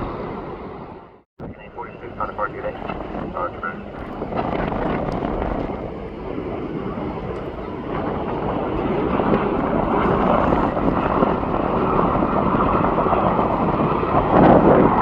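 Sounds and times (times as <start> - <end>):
jet engine rush: 0.0 - 15.0.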